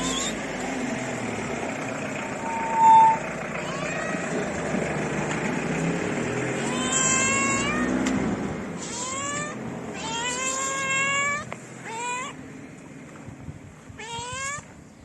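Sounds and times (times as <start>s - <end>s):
cat meowing: 0.0s - 0.4s, 2.4s - 4.4s, 6.6s - 8.0s, 8.8s - 12.4s, 14.0s - 14.7s.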